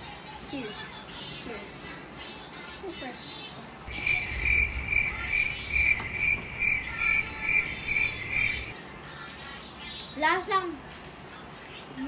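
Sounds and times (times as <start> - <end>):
cricket chirping: 3.9 - 8.7
low hum: 3.9 - 8.8.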